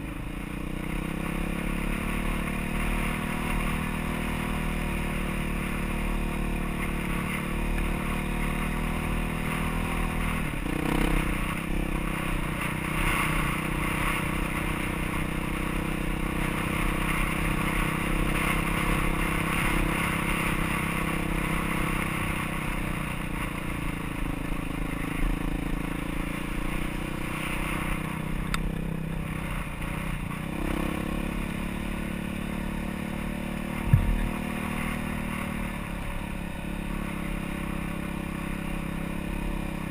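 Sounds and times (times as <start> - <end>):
motorcycle engine revving: 0.0 - 39.9
sharp knock: 33.9 - 34.3.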